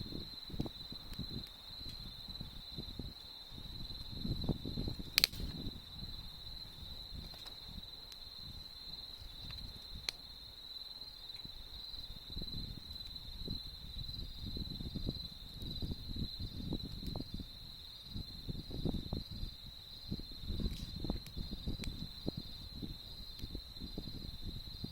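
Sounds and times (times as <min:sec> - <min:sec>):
campfire crackling: 0:00.0 - 0:24.9
insects trilling: 0:00.0 - 0:24.9
sharp pop from fire: 0:04.8 - 0:05.8.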